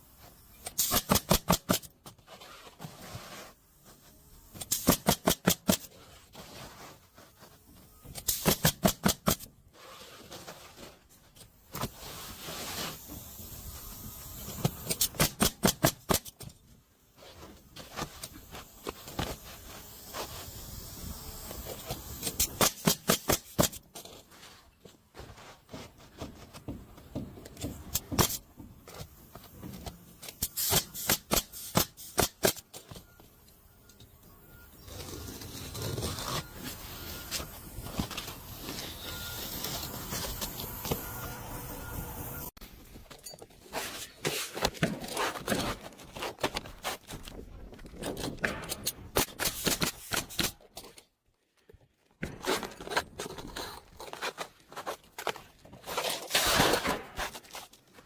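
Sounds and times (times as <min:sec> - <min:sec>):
pneumatic nailer firing bursts: 0:00.6 - 0:01.9, 0:04.5 - 0:06.0, 0:08.0 - 0:09.5, 0:12.9 - 0:16.4, 0:19.9 - 0:23.8, 0:27.7 - 0:28.5, 0:30.2 - 0:32.8, 0:48.4 - 0:50.6, 0:56.0 - 0:57.2.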